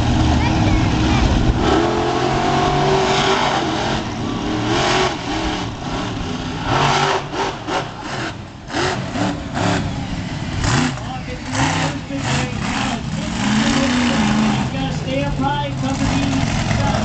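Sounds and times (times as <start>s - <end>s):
monster truck engine revving: 0.0s - 17.0s.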